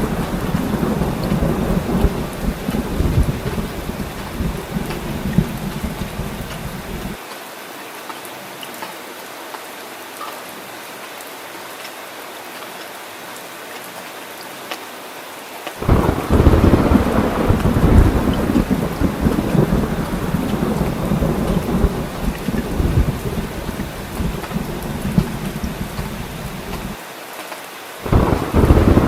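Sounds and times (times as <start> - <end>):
thunder rumbling: 0.0 - 7.2, 15.8 - 27.0, 28.0 - 29.0
steady rain falling: 0.0 - 29.0.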